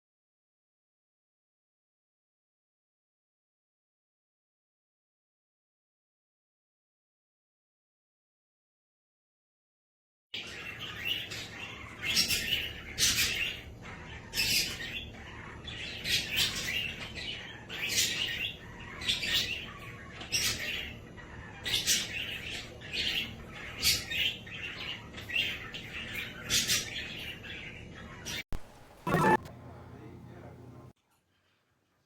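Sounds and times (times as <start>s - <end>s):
cage bird chirping: 10.4s - 30.2s.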